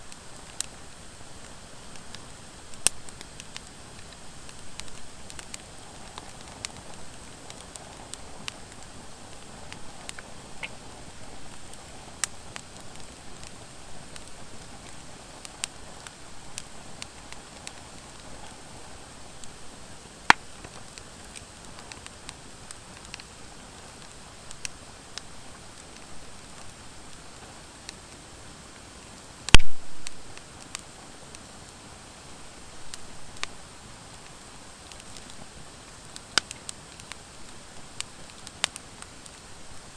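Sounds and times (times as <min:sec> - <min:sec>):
logs burning with crackles: 0:00.0 - 0:39.9
loud sharp pop of fire: 0:29.5 - 0:30.5.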